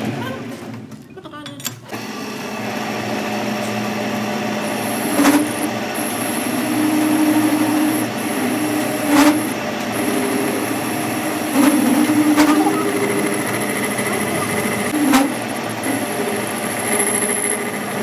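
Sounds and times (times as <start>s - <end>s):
workshop machine humming: 0.0s - 18.0s.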